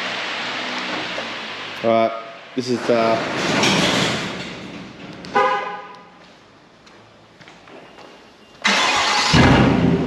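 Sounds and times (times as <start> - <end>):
truck engine cranking and starting: 8.6 - 10.0.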